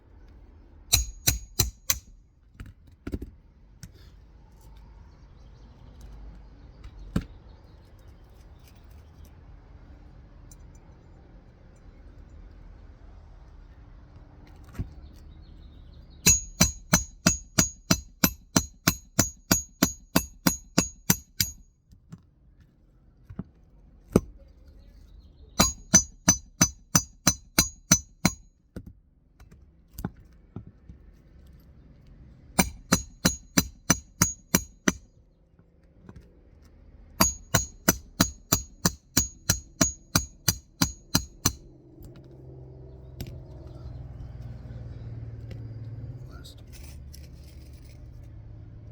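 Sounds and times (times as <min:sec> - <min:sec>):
hammer striking roofing nails: 0:00.9 - 0:02.2, 0:16.3 - 0:21.6, 0:25.6 - 0:28.4, 0:32.6 - 0:35.1, 0:37.2 - 0:41.7.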